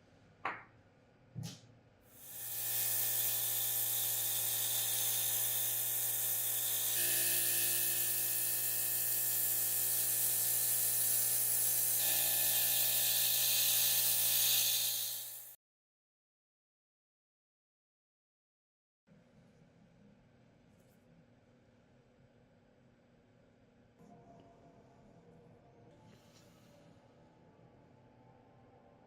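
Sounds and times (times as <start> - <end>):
compressed air hissing: 2.2 - 7.0, 13.1 - 15.6.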